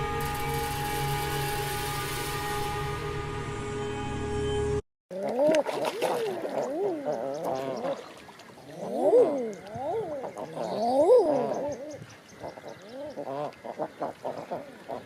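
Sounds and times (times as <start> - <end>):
birds calling: 6.4 - 15.0.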